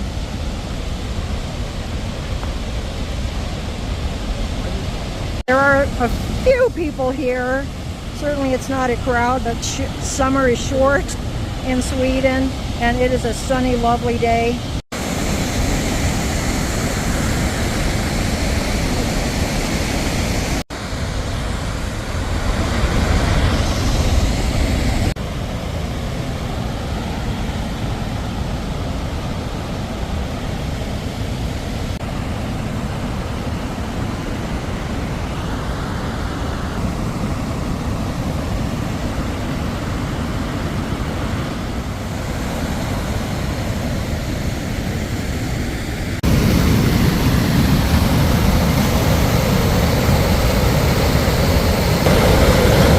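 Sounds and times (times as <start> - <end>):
waterfall rushing: 46.0 - 52.9.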